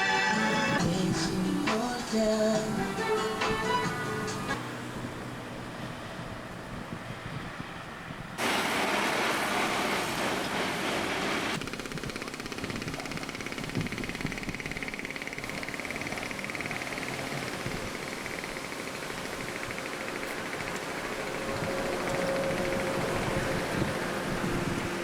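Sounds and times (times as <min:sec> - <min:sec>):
street vehicle noise: 0:00.0 - 0:13.6, 0:14.8 - 0:25.0
engine running with fast beat: 0:11.5 - 0:25.0.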